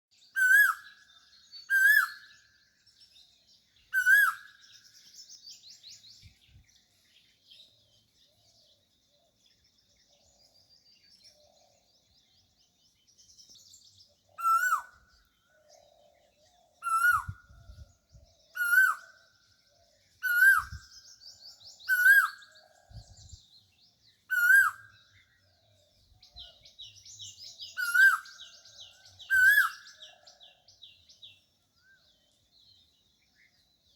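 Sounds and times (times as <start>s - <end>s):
small birds chirping: 0.1s - 33.9s
bird whistled calls: 0.4s - 1.0s, 1.6s - 2.4s, 3.9s - 4.6s, 14.4s - 15.0s, 16.8s - 17.5s, 18.5s - 19.1s, 20.2s - 21.0s, 21.8s - 22.5s, 24.3s - 25.0s, 27.6s - 28.5s, 29.3s - 30.0s.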